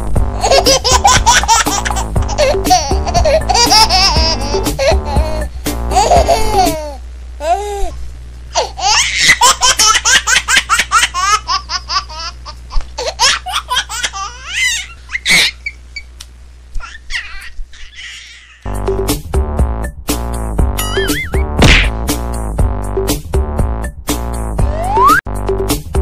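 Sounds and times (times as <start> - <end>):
high-pitched laughter: 8.6 - 15.8, 20.8 - 21.4.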